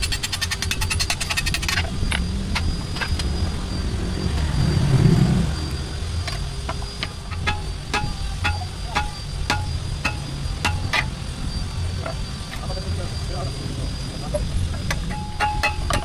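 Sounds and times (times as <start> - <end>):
low machine rumble: 0.9 - 16.0
sharp strikes on metal: 7.0 - 11.2, 14.9 - 16.0
rapid machine hammering on metal: 7.0 - 11.4, 14.9 - 16.0.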